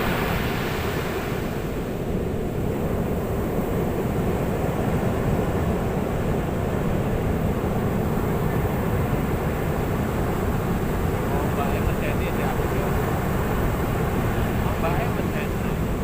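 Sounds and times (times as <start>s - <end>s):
ocean waves rumbling: 0.0s - 16.0s.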